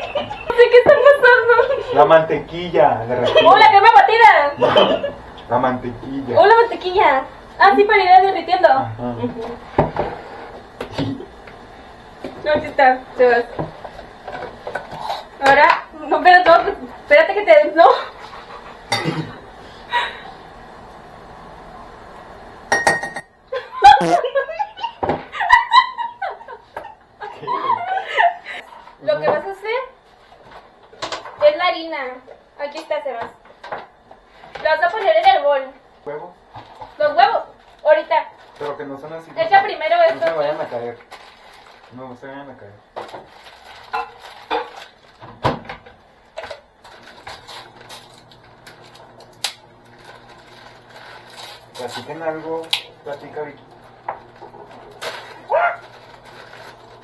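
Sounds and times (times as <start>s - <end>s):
people laughing: 0.0s - 2.0s, 4.6s - 5.3s, 23.6s - 28.7s
kitchenware clattering: 4.5s - 5.5s, 18.9s - 19.5s, 22.7s - 23.4s
kitchen items clattering on counter: 18.9s - 19.4s.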